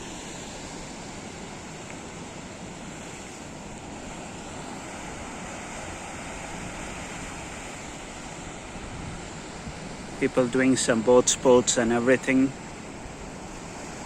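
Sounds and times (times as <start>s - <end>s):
sea washing against shore: 0.0s - 14.0s
wind buffeting microphone: 4.9s - 11.0s.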